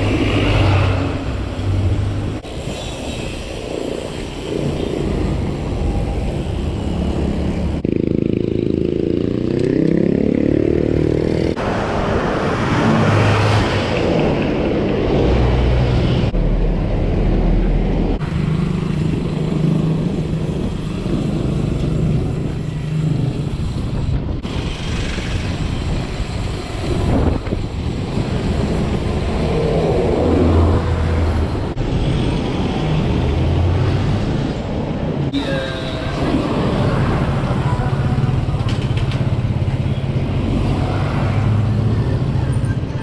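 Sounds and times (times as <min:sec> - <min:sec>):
bike tyre road rumble: 0:00.0 - 0:43.0
wind buffeting microphone: 0:18.8 - 0:35.4.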